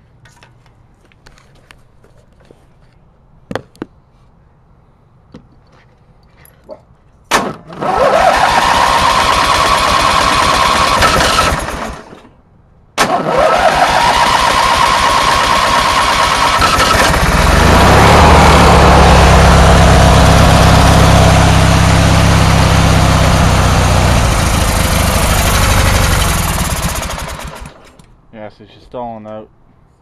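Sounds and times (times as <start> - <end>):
riding mower engine running: 7.7 - 12.3, 13.0 - 28.1.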